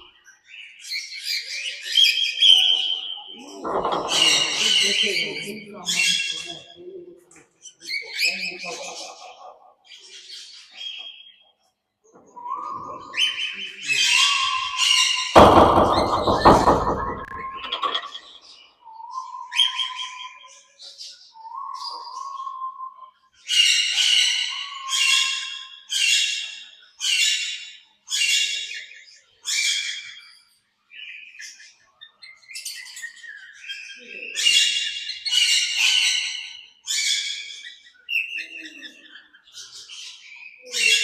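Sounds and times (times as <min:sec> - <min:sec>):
parrots screeching: 0:01.0 - 0:06.6, 0:33.8 - 0:41.0.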